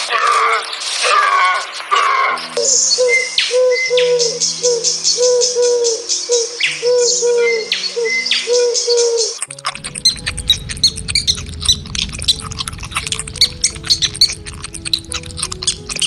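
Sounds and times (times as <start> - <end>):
bird cooing: 3.0 - 16.0
low held tones: 9.5 - 16.0.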